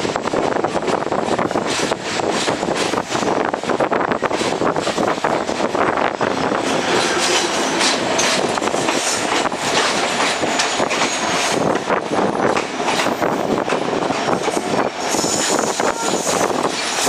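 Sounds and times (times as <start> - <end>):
train wheels clattering over rails: 0.0 - 17.0
high wheel squeal: 15.1 - 17.0.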